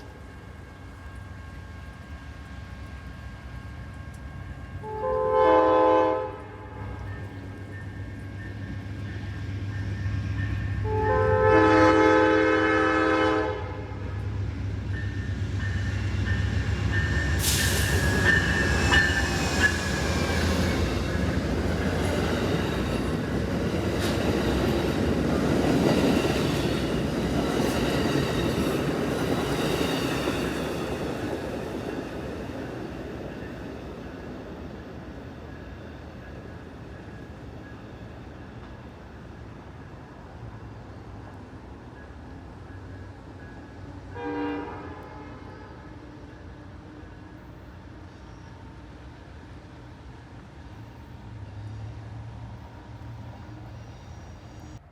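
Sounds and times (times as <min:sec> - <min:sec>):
train rail and wheel noise: 0:00.0 - 0:54.9
train air horn blasts: 0:04.8 - 0:07.1, 0:10.8 - 0:14.2, 0:44.1 - 0:46.2.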